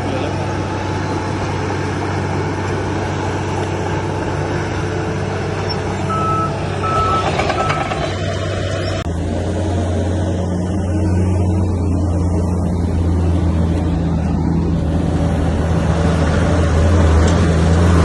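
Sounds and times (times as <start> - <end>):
diesel engine running: 0.0 - 18.0
reversing alarm beeping: 6.1 - 7.9.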